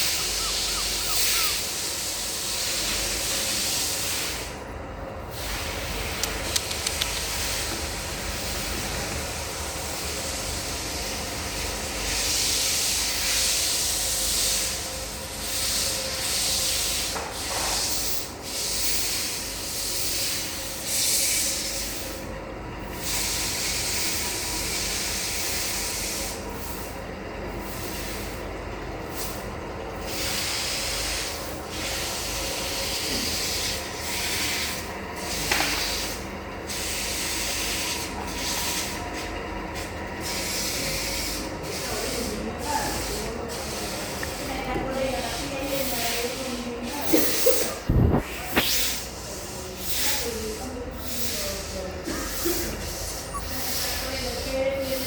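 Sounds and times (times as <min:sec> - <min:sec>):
hissing rubbing noise: 0:00.0 - 0:01.6
low hum: 0:47.8 - 0:48.6.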